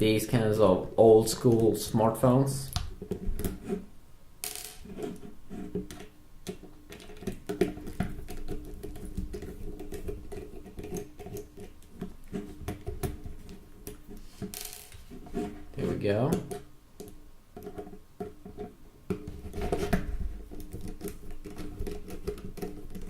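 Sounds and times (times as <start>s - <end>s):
screwdriver clicking and scraping plastic: 4.9s - 15.0s, 16.4s - 23.0s.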